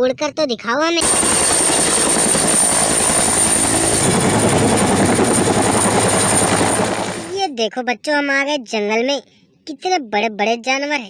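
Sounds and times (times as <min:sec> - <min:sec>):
helicopter high whine: 0:01.0 - 0:07.4
helicopter rotor chop: 0:01.0 - 0:07.4.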